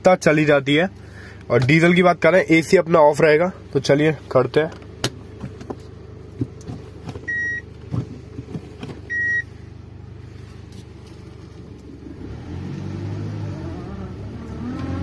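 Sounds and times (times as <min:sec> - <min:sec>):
diesel engine idling: 0:00.0 - 0:13.3
short electronic beeps: 0:07.3 - 0:07.6, 0:09.1 - 0:09.5
engine revving: 0:11.9 - 0:15.0.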